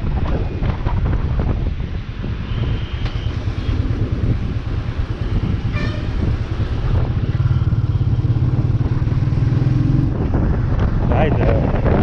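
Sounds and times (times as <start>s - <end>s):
motorcycle engine running: 3.3s - 10.8s
short horn toot: 5.7s - 6.2s.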